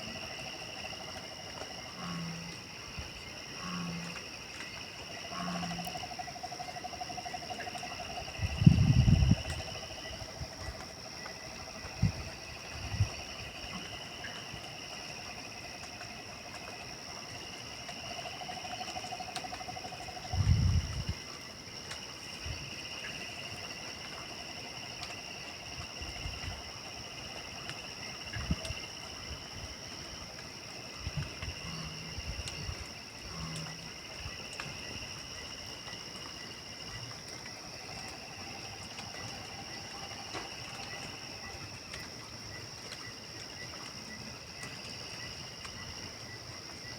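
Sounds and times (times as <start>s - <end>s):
frog calls: 0.0s - 15.8s, 31.2s - 35.2s.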